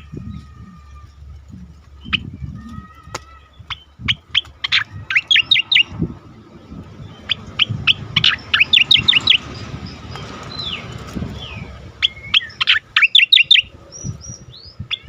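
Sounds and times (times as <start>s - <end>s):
bird singing chirps and whistles: 3.5s - 6.0s, 7.0s - 10.8s, 11.4s - 15.0s.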